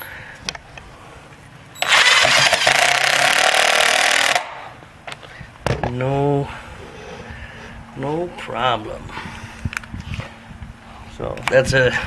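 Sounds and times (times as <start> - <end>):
cordless driver driving screw into wood: 1.8 - 4.6.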